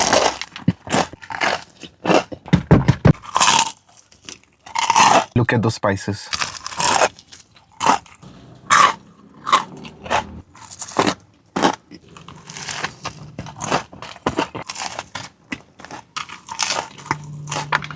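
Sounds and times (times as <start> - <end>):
crunchy biting and chewing: 0.0 - 2.5, 3.1 - 5.4, 6.3 - 17.9.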